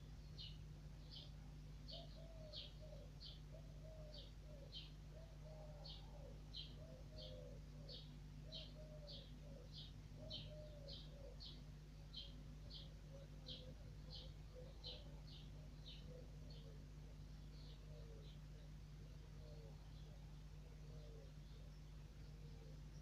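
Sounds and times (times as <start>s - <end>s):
faint steady hum: 0.0s - 23.0s
small bird chirping: 0.0s - 23.0s
dove cooing: 1.9s - 11.6s, 12.7s - 16.8s.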